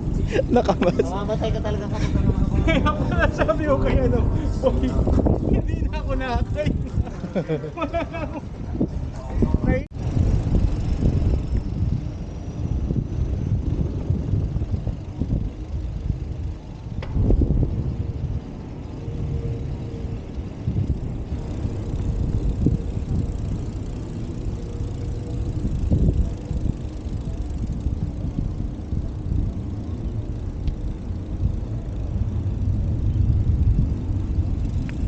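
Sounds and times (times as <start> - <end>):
road noise: 0.0 - 35.0
wind buffeting microphone: 0.0 - 35.0.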